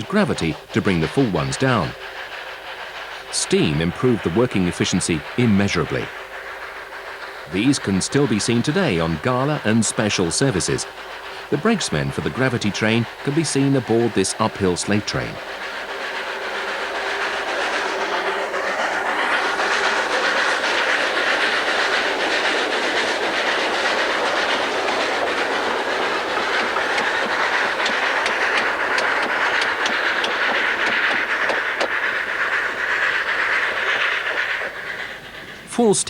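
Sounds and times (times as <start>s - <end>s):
train wagons clattering: 0.0s - 36.0s
wheel clicks over rail joints: 19.5s - 35.7s.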